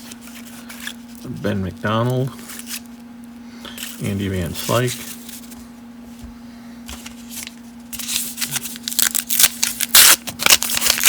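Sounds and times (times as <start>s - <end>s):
faint steady hum: 0.0s - 11.0s
cards slapping and rustling: 6.9s - 11.0s.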